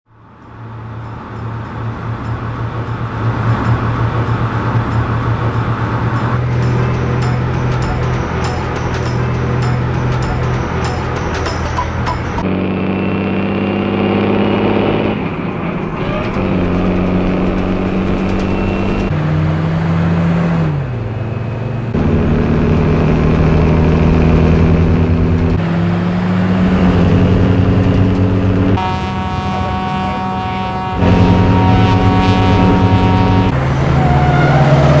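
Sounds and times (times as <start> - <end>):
vehicle engines running: 0.1 - 35.0
higher-pitched engine note: 1.0 - 13.2, 26.6 - 35.0.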